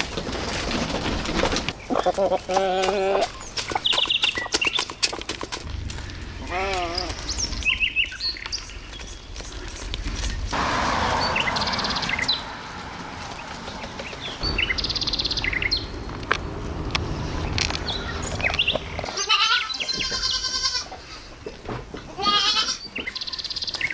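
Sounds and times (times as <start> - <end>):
small birds chirping: 1.7 - 23.9
goat bleating: 1.9 - 3.4, 6.4 - 7.2, 19.0 - 21.2, 22.1 - 22.9.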